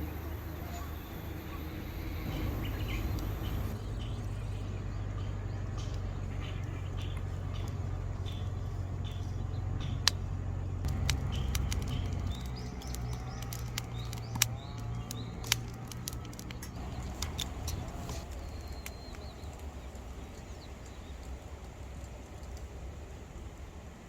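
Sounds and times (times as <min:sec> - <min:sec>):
wood fire crackling and popping: 0:00.0 - 0:03.8, 0:07.2 - 0:21.3
small birds chirping: 0:00.0 - 0:22.7.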